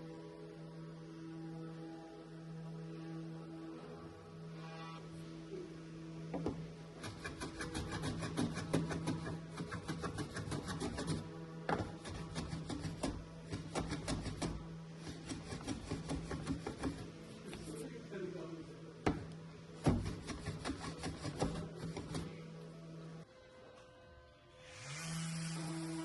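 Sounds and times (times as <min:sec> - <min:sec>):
hand tool rubbing on wood: 0:07.0 - 0:18.1, 0:19.8 - 0:22.5.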